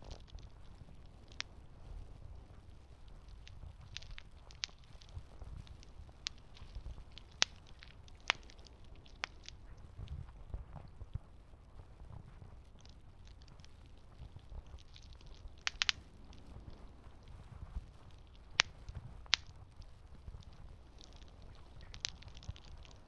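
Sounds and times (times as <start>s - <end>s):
campfire crackling: 0.0s - 23.0s
sharp fire pops: 3.2s - 10.1s, 12.7s - 23.0s.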